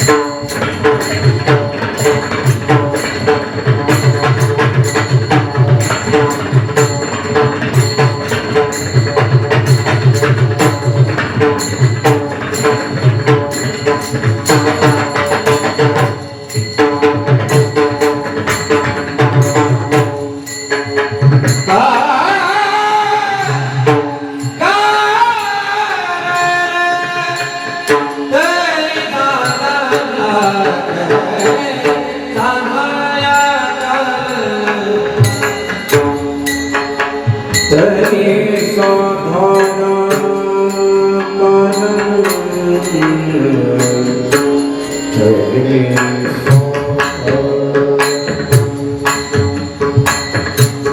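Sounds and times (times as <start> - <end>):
drumming: 0.0 - 50.9
man singing devotional phrases: 21.7 - 35.4, 37.7 - 48.4.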